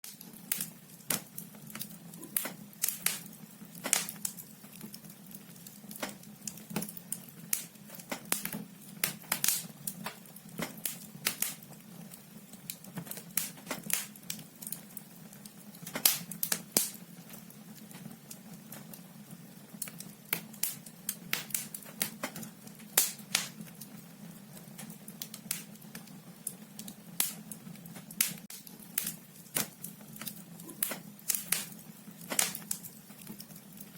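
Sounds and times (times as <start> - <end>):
firewood crackling and popping: 0.0 - 33.9.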